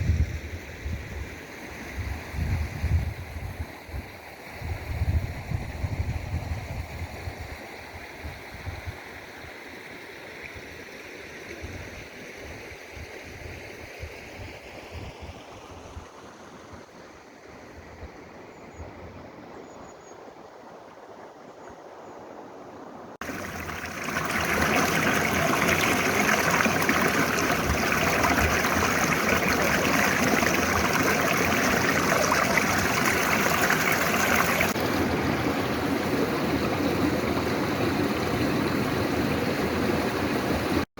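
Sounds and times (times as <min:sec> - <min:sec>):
wind rumbling on microphone: 0:00.0 - 0:07.6, 0:23.2 - 0:40.8
stream flowing: 0:23.2 - 0:40.8
rushing water: 0:23.2 - 0:40.9.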